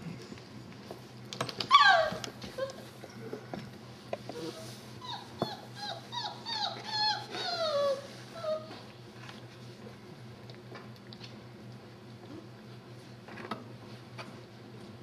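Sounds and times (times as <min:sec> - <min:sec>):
puppies squealing: 0:01.7 - 0:02.7, 0:04.4 - 0:08.7
puppies yelping: 0:01.7 - 0:02.8, 0:05.0 - 0:08.7.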